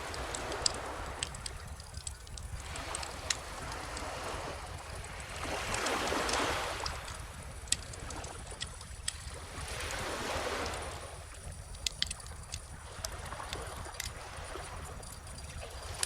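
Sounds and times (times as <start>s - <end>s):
wood fire crackling and popping: 0.0s - 4.1s, 5.7s - 9.4s, 11.5s - 12.8s
small ocean waves washing in: 0.0s - 16.0s.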